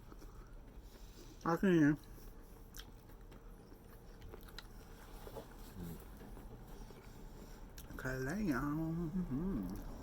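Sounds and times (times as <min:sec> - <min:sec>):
person chewing: 0:00.0 - 0:08.0.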